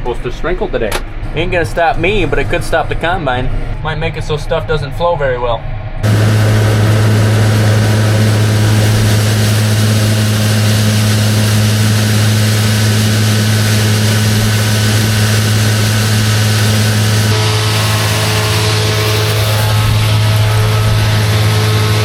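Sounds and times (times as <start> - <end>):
tractor diesel engine running: 6.0 - 22.0.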